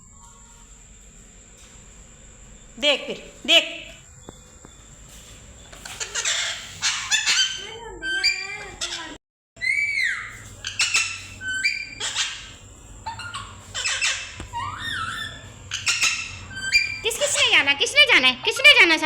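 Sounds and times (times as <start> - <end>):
parrots squawking: 5.6 - 19.0.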